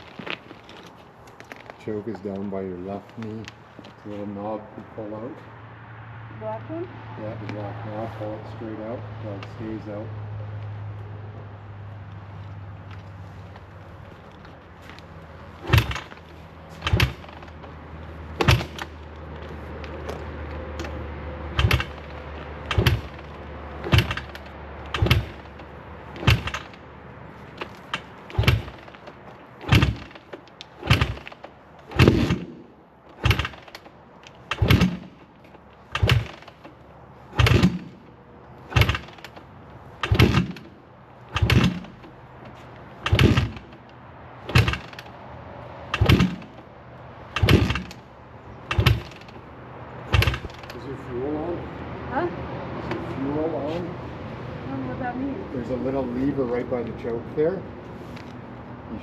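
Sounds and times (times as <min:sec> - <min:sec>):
motorcycle start attempts: 0:12.8 - 0:51.6.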